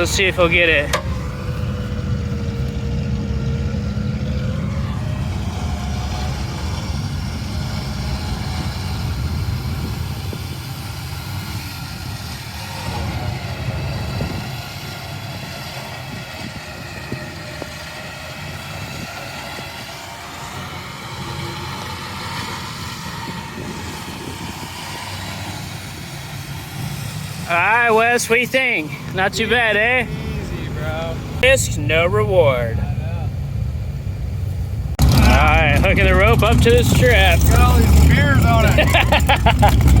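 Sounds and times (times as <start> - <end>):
truck engine running under load: 0.0 - 40.0.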